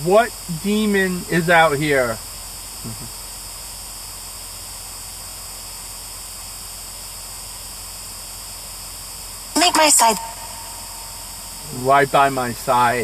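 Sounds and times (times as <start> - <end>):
low hum: 0.0 - 2.2, 9.6 - 13.0
electronic hiss and static: 0.0 - 3.3, 9.5 - 13.0.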